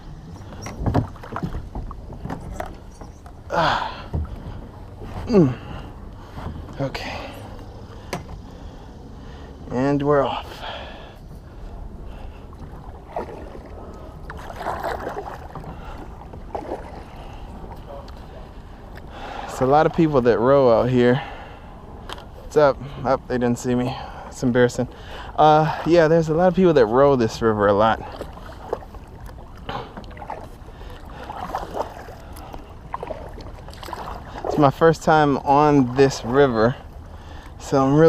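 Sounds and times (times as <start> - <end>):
low steady rumble: 0.0 - 38.0
kayak paddle splashing in water: 0.5 - 8.5, 11.7 - 20.0, 27.7 - 38.0.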